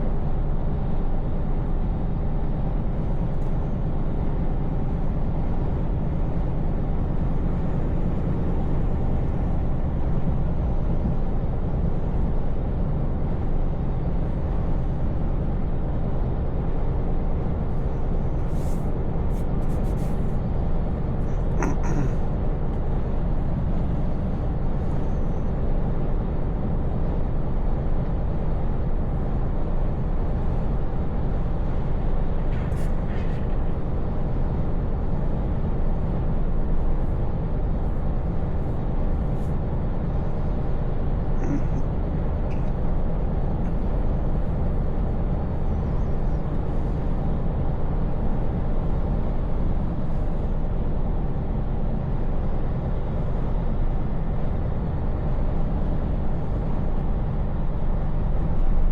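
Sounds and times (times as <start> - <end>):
road noise: 17.1 - 25.0.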